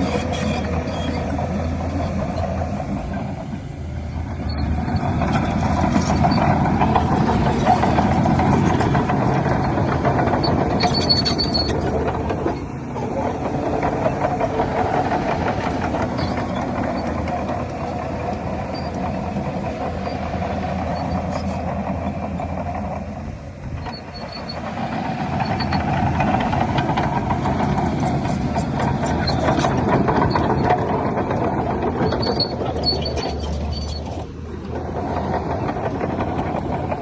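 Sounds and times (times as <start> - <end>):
bulldozer diesel engine running: 0.0 - 37.0
faint high squeaks: 32.1 - 34.3.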